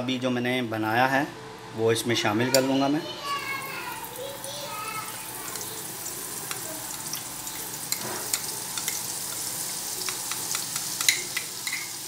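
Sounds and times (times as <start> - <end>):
paste sizzling in hot oil: 3.4 - 12.0
spoon clicking against pan: 6.4 - 7.1, 7.9 - 12.0.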